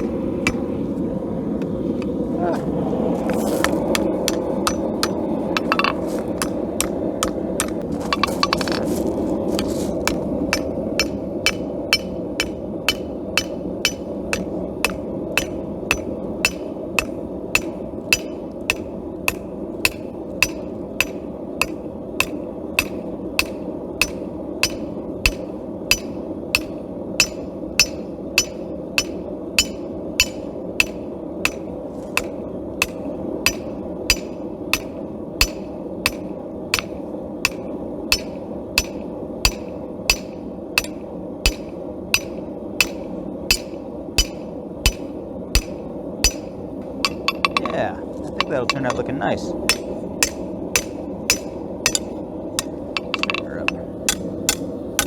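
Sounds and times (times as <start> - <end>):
hammer striking steel on anvil: 0.0 - 0.8, 3.6 - 8.8, 9.6 - 55.0
steady background rush: 0.0 - 55.0.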